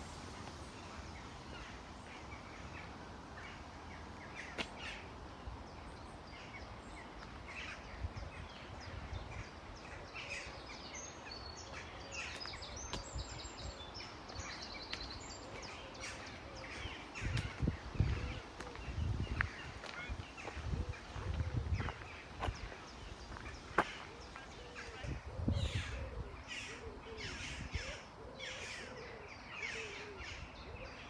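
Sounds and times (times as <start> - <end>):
birds chirping and singing: 5.9 - 31.0
wind rumble on microphone: 7.8 - 10.1, 16.7 - 26.5, 27.1 - 28.1.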